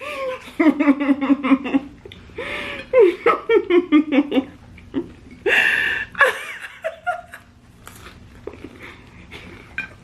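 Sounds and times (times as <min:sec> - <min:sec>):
woman laughing breathily: 0:00.0 - 0:04.6, 0:05.4 - 0:07.3
chewing potato chips: 0:07.6 - 0:09.8.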